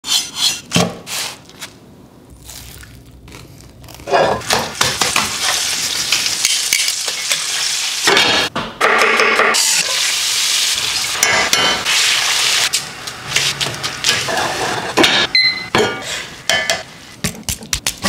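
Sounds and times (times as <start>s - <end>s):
food sizzling in hot pan: 4.6s - 8.5s, 9.6s - 13.6s.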